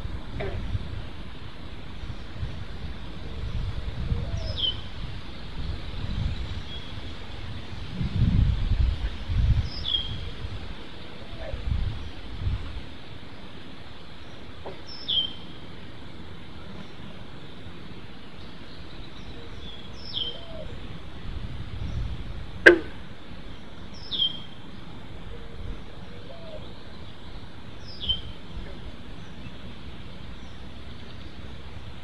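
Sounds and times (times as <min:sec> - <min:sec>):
outdoor background noise: 0:00.0 - 0:32.0
fainter lower bird calls: 0:03.0 - 0:07.1, 0:13.2 - 0:21.1, 0:23.4 - 0:32.0.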